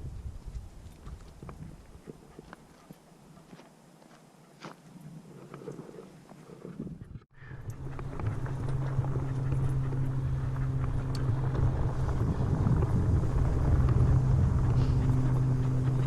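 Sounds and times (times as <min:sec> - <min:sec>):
vehicle humming: 0:07.4 - 0:16.0.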